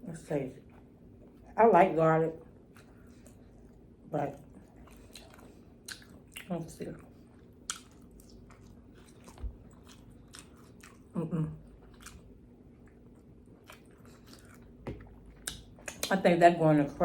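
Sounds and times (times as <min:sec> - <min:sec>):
wet chewing and smacking: 0:02.4 - 0:16.2.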